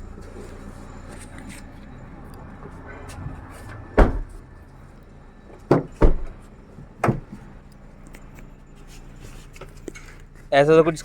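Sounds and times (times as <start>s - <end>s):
car door thudding shut: 3.7s - 4.4s, 5.7s - 6.4s, 7.0s - 7.4s.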